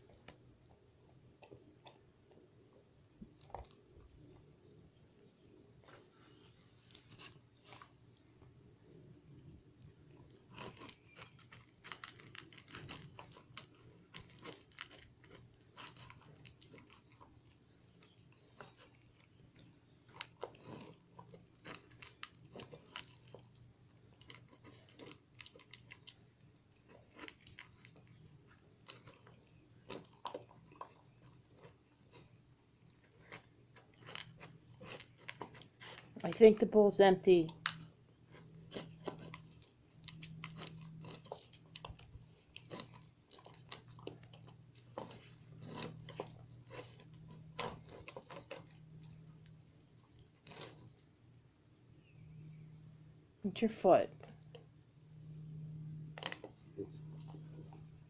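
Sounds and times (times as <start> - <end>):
puppy chewing food: 9.7 - 36.3, 37.5 - 51.2, 55.4 - 58.0.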